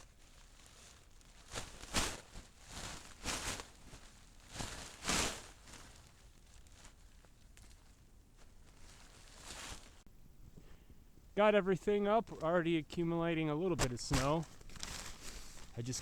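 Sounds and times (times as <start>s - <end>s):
footsteps in snow: 0.6s - 7.8s, 8.4s - 10.1s, 11.4s - 16.0s.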